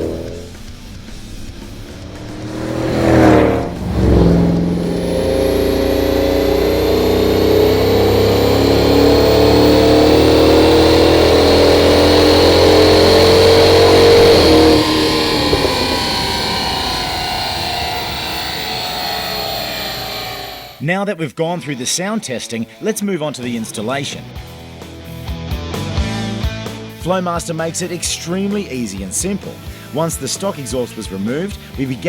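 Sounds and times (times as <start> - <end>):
car engine deep exhaust: 0.0 - 20.8
faint high whine: 0.0 - 20.8.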